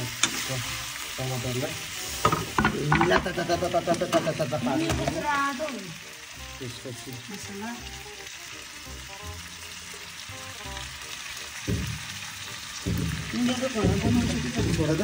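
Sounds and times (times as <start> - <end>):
meat sizzling in a pan: 0.0 - 15.0
stirring in a pan: 9.0 - 15.0.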